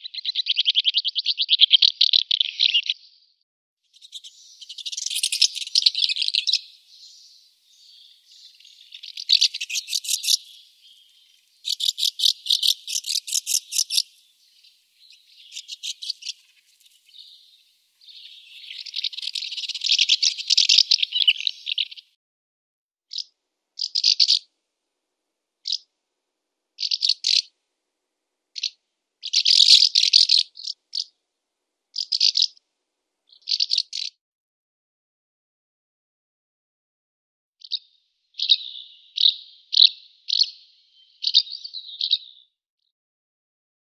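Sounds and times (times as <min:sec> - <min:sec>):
bird short chirps: 0:04.0 - 0:22.0
swallow twittering song: 0:04.0 - 0:22.1.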